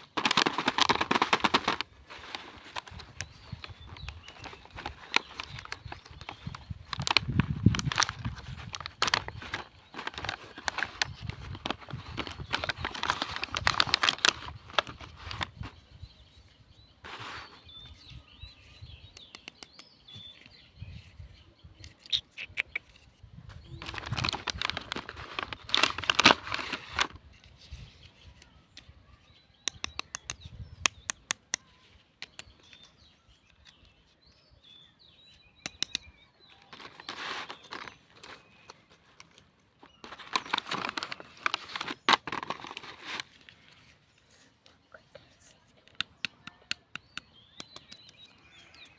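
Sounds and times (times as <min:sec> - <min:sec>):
packaging crinkling and rustling: 0:00.0 - 0:15.8, 0:23.8 - 0:27.2, 0:36.5 - 0:43.8.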